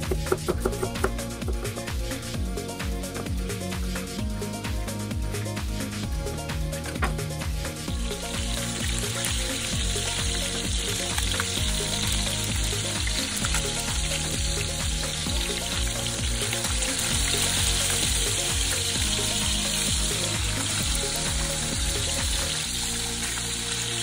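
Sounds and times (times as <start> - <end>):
background music with beat: 0.0 - 24.0
food sizzling in a pan: 7.6 - 24.0.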